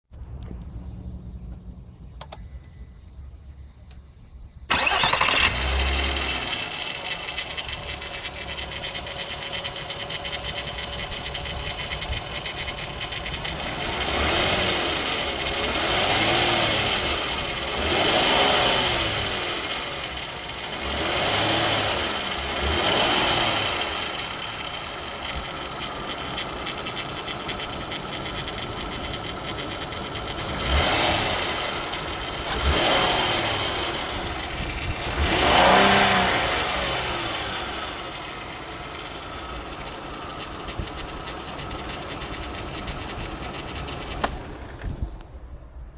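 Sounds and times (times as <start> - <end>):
car engine idling: 0.1 - 45.9
car engine starting: 0.1 - 45.9
engine revving in blips: 4.7 - 45.0.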